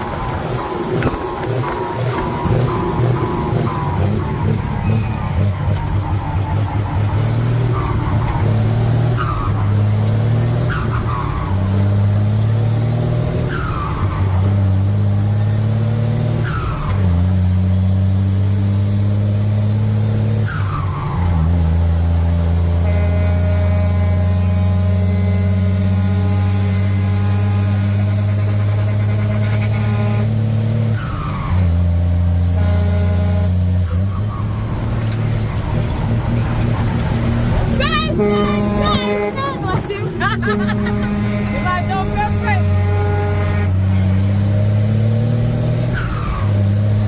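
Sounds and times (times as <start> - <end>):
truck engine pulling away: 0.0 - 47.0
short falling squeals: 2.4 - 6.0.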